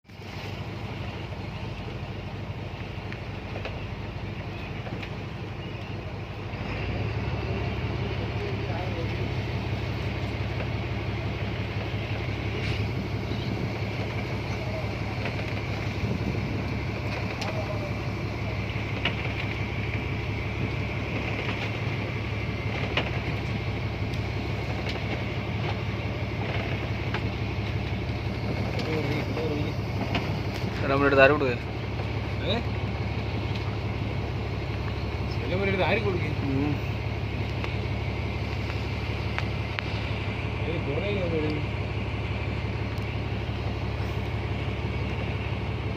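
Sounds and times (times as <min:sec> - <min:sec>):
boat engine droning: 0:00.0 - 0:45.9
wind buffeting microphone: 0:11.2 - 0:25.5.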